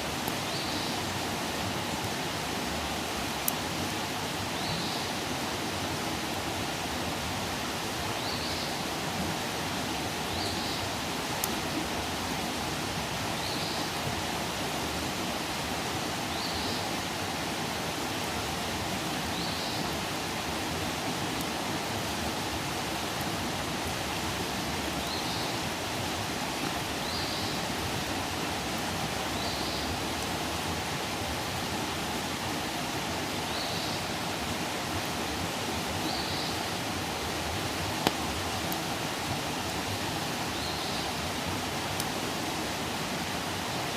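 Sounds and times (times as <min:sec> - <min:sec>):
campfire hissing: 0:00.0 - 0:43.9
faint fire pop: 0:38.0 - 0:38.2.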